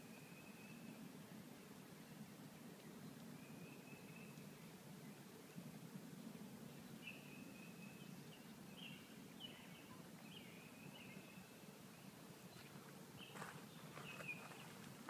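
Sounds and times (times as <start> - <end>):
faint high bird calls: 12.5 - 14.9.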